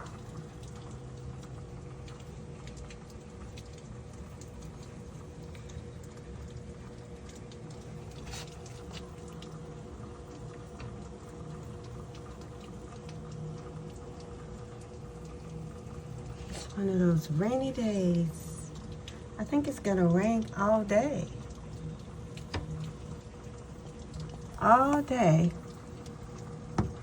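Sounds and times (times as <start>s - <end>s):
steady low hum: 0.0s - 27.0s
steady rain falling: 0.0s - 27.0s.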